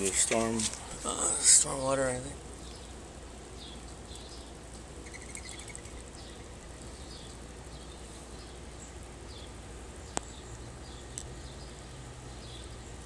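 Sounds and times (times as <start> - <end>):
buzzy bird trill: 1.0 - 13.0
bird chirping: 2.6 - 13.0.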